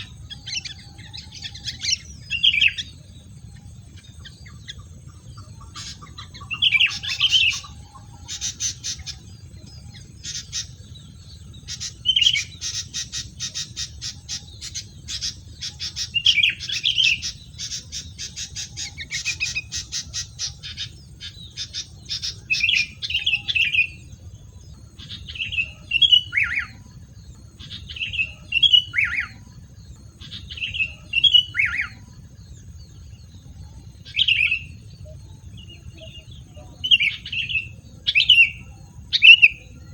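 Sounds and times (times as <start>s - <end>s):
bird squawking and chattering: 4.6s - 10.9s, 11.6s - 24.0s.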